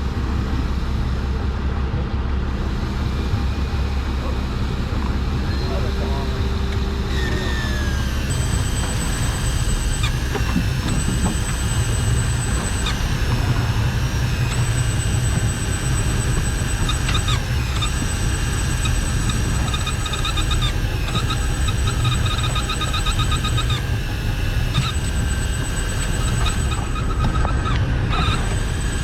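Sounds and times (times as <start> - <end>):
low boat rumble: 0.0 - 29.0
fishing reel motor whining: 2.4 - 29.0.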